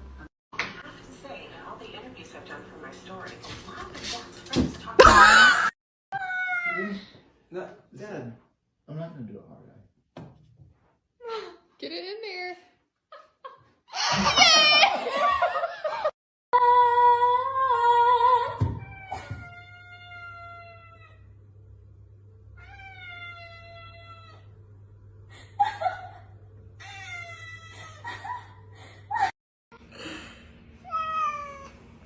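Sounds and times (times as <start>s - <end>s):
cats meowing and yowling: 6.1s - 7.0s, 18.6s - 21.3s, 22.6s - 24.5s, 26.8s - 28.0s, 30.9s - 31.8s.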